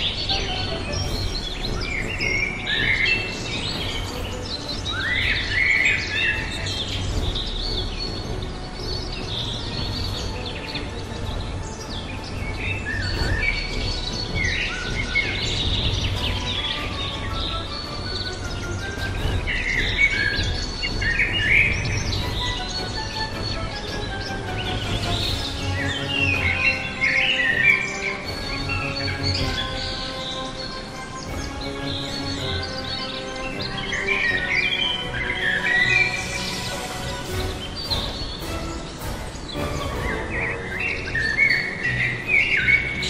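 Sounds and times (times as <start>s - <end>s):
wild birds chirping and calling: 0.0s - 43.0s.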